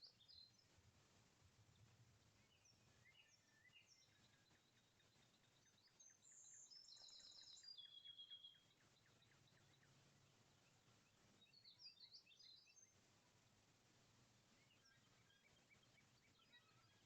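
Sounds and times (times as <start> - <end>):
songbird trilling: 2.4 - 9.9.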